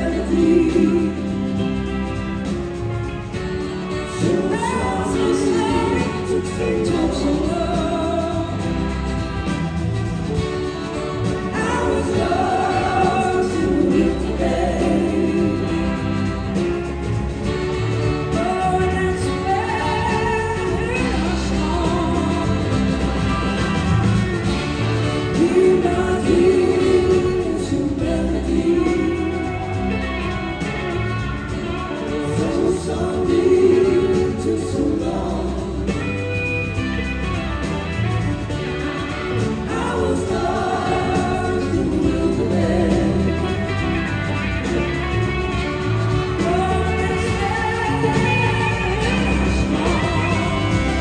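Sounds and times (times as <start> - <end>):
harmony vocals: 0.0 - 51.0
live band playing: 0.0 - 51.0
person singing: 3.9 - 9.2, 46.2 - 51.0.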